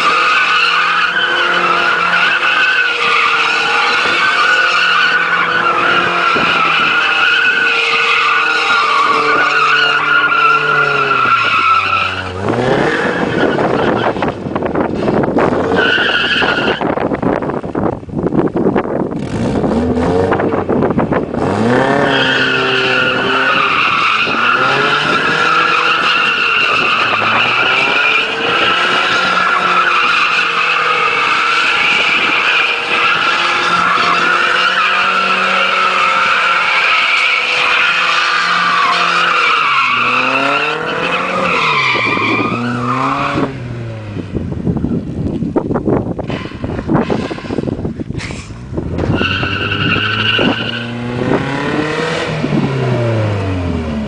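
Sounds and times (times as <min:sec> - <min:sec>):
tyres squealing: 0:00.0 - 0:14.1, 0:22.0 - 0:43.5, 0:49.0 - 0:51.0
car engine revving: 0:00.0 - 0:17.4, 0:19.0 - 0:54.0.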